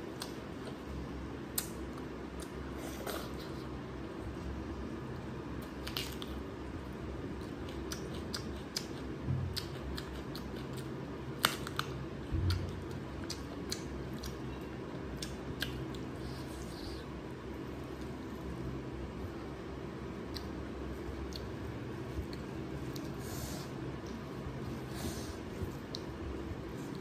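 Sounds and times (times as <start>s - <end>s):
steady low hum: 0.0s - 27.0s
chewing with wet lip smacks: 7.4s - 16.1s, 20.2s - 23.2s.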